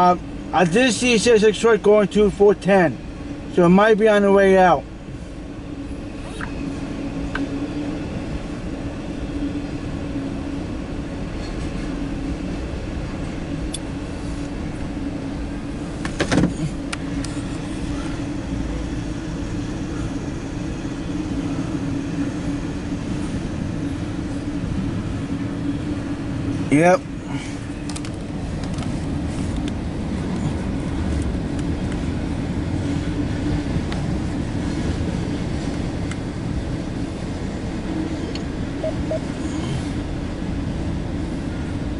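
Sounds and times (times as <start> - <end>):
engine idling: 12.0 - 41.9.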